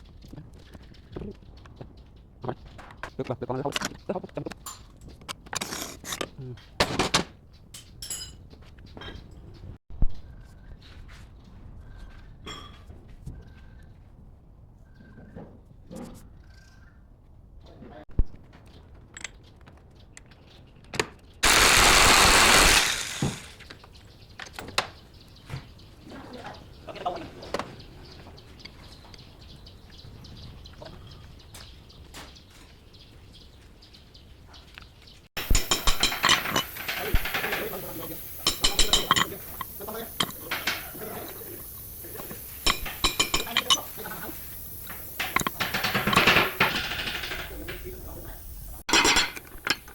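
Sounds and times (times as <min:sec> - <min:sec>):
sharp metal clanks and knocks: 0:05.6 - 0:08.4, 0:35.4 - 0:49.9
metal tools clinking: 0:07.7 - 0:09.3, 0:35.4 - 0:49.9
power tool running: 0:21.4 - 0:23.6.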